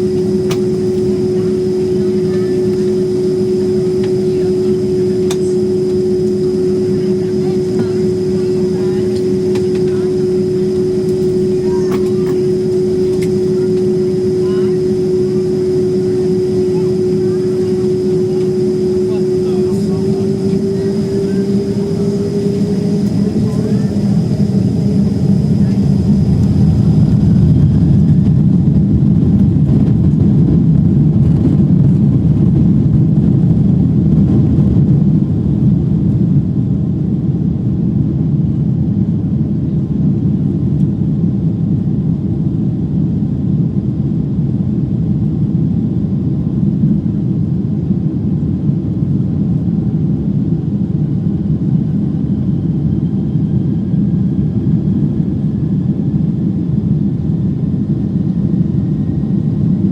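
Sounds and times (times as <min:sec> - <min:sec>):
faint rising whine: 0:00.0 - 0:28.6
jet engine cabin rumble: 0:00.0 - 0:59.9.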